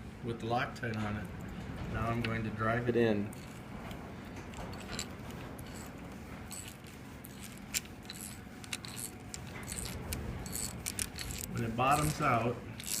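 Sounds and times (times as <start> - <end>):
hand tool clicking metal: 6.5 - 12.2, 12.8 - 13.0.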